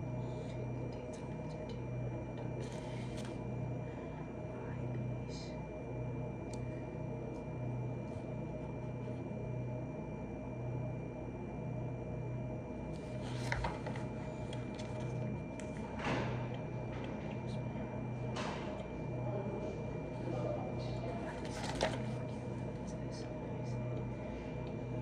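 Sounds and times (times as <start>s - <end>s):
faint high whine: 0.0s - 25.0s
steady low hum: 0.0s - 25.0s
rustling handling noises: 13.0s - 15.8s, 20.8s - 22.5s.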